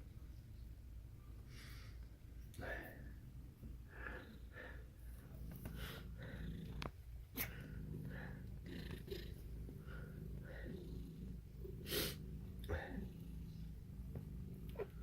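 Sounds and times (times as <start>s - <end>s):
cat purring: 3.4s - 15.0s.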